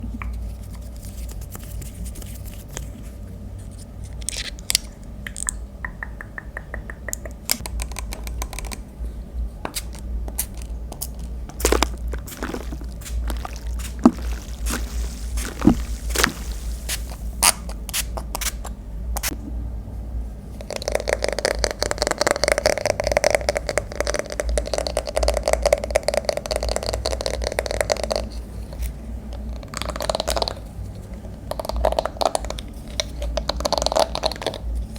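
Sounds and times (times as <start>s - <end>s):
taps and clicks: 5.3s - 8.6s
low hum: 10.5s - 20.6s
rapid scratching and scraping: 11.6s - 17.7s.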